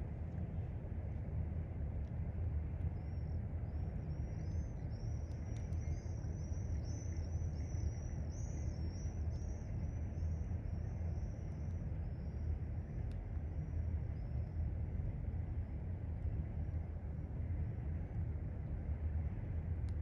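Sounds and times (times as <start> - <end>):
small bird singing: 3.7 - 12.4
faint clicks: 5.0 - 6.2, 13.0 - 13.3.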